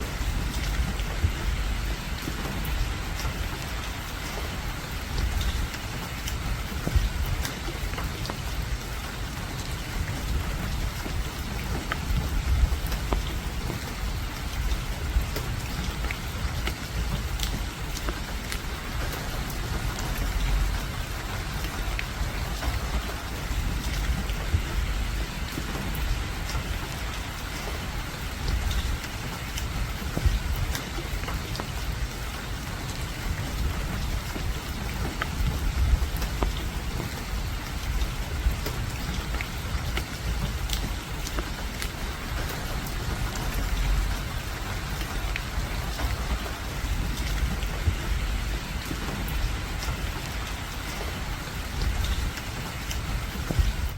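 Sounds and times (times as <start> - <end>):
rain hiss: 0.0 - 53.9
raindrops ticking: 0.0 - 53.9.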